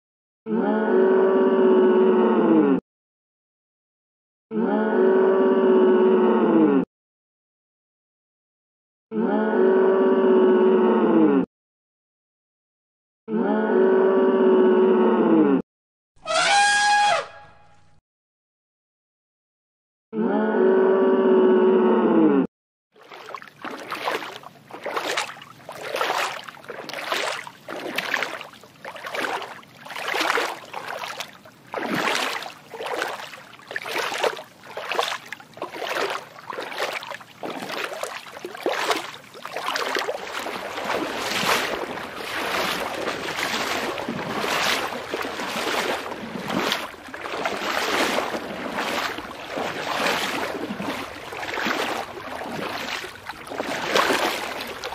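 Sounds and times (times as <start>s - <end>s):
held animal call: 16.2s - 17.5s
rhythmic whooshing water: 23.0s - 54.9s.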